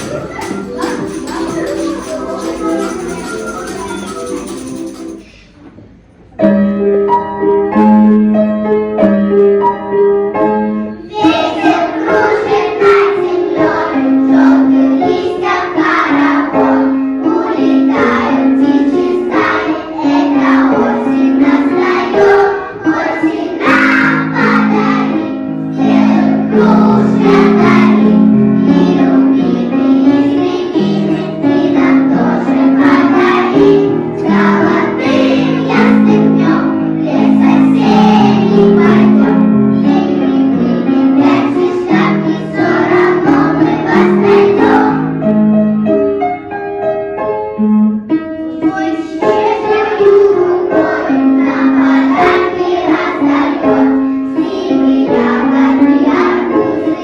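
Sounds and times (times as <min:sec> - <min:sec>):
young children singing: 0:00.0 - 0:05.2, 0:11.0 - 0:45.3, 0:48.5 - 0:57.0
instrumental accompaniment: 0:00.0 - 0:06.0.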